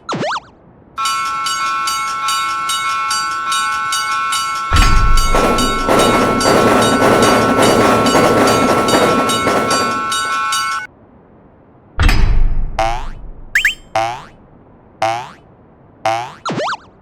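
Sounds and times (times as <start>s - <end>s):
crossing warning bell ringing: 1.0s - 10.9s, 12.1s - 14.4s
train wheels clickety-clack: 1.0s - 10.9s
loud low thump: 12.0s - 13.6s.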